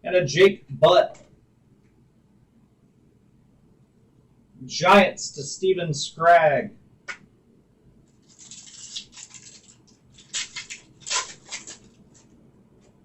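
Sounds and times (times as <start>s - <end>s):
cards and packaging rustling: 8.1s - 12.4s.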